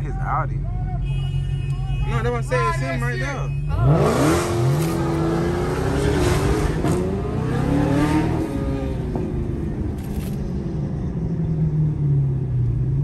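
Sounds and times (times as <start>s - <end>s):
car engine revving: 3.7s - 10.9s.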